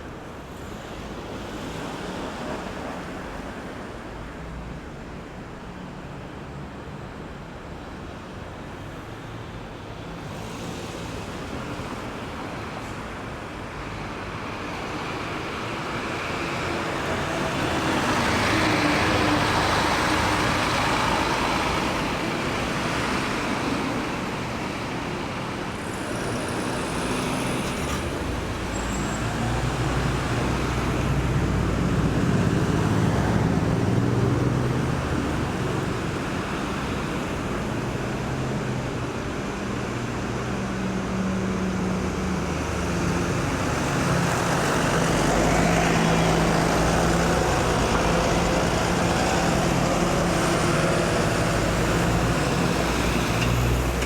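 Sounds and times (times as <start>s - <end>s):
vehicle passing with tyre noise: 14.6s - 54.0s
heavy vehicle engine droning: 14.7s - 54.0s.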